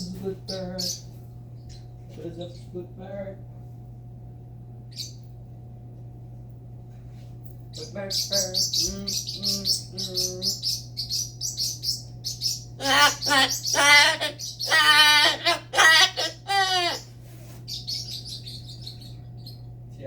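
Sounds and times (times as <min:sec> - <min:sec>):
parrot chirping: 0:07.8 - 0:17.1, 0:17.7 - 0:19.7
parrot loud drawn-out calls: 0:12.2 - 0:17.1.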